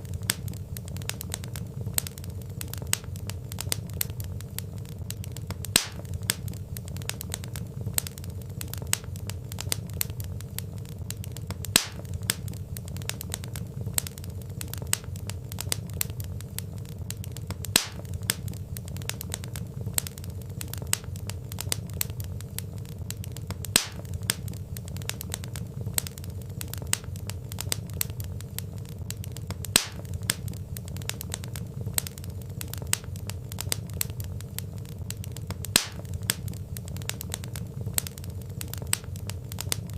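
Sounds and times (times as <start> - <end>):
fireplace flames rumbling: 0.0 - 39.9
logs crackling: 0.0 - 39.9
sharp loud pop of fire: 5.7 - 6.1, 11.7 - 12.1, 17.8 - 18.0, 23.8 - 24.0, 29.8 - 30.0, 35.7 - 36.0.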